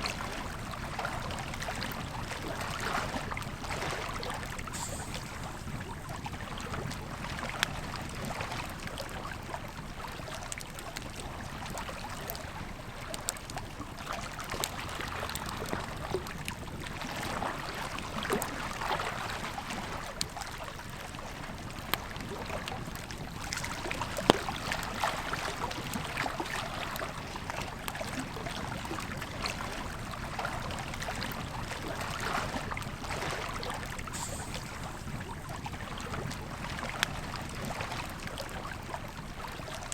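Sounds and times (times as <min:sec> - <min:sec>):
river flowing: 0:22.3 - 0:39.9.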